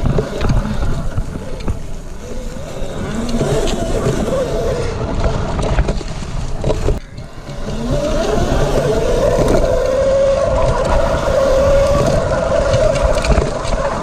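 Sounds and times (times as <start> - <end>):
electric motor whining: 0.0 - 6.0, 6.6 - 14.0
low wind: 0.0 - 14.0
road rumble: 0.0 - 14.0.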